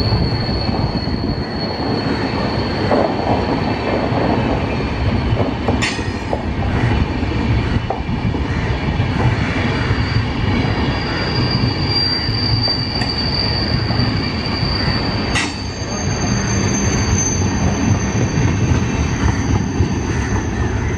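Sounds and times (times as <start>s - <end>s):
high-pitched wheel squeal: 0.0s - 3.8s, 9.5s - 20.9s
train wheels rolling on rails: 0.0s - 20.9s.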